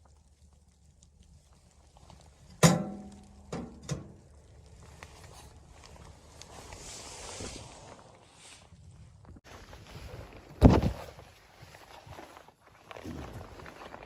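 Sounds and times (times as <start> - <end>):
soft rustling: 4.5 - 14.0.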